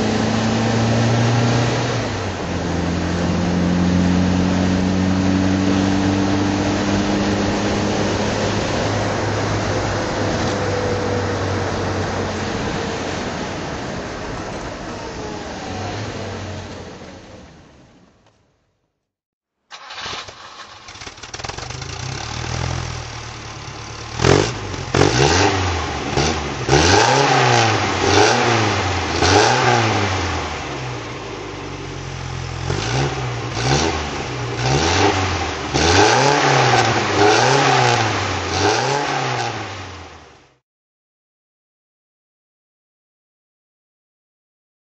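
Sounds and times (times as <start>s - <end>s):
car engine revving: 0.0s - 18.0s, 19.7s - 40.3s.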